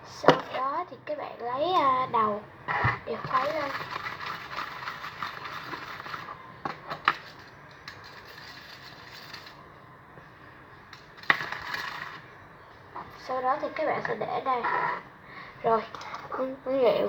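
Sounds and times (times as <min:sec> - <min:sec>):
chopsticks stirring in container: 0:03.2 - 0:09.6.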